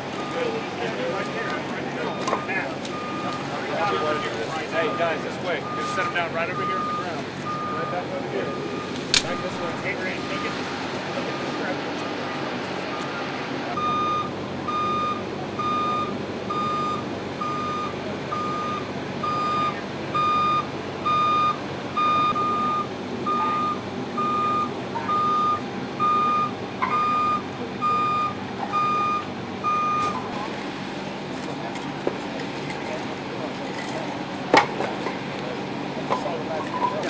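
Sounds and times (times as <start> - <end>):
vehicle engines running: 0.0 - 37.0
reversing alarm beeping: 0.1 - 1.3, 2.0 - 10.6, 12.9 - 30.3.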